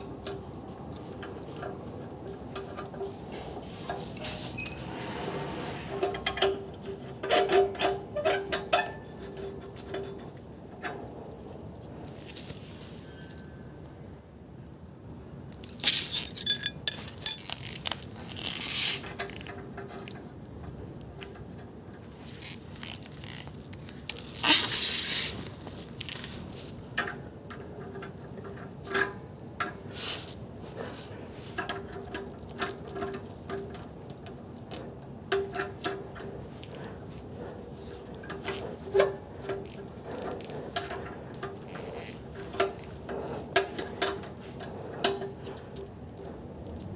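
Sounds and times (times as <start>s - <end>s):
hand tools clinking on metal: 15.6s - 18.3s.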